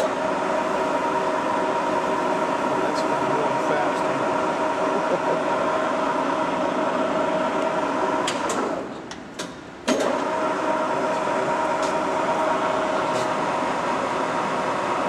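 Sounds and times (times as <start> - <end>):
lathe gear whine: 0.0 - 8.8, 10.1 - 15.0.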